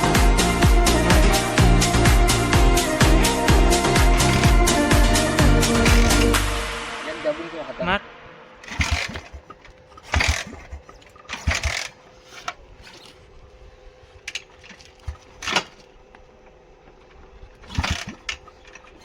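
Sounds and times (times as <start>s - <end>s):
motorcycle engine idling: 0.0s - 6.9s, 8.3s - 14.3s
motorcycle exhaust blipping: 0.0s - 13.3s.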